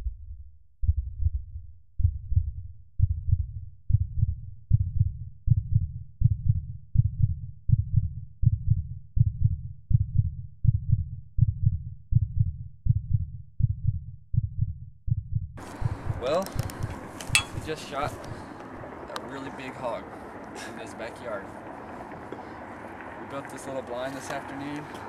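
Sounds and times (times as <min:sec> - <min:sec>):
heartbeat thumps: 0:00.0 - 0:18.4.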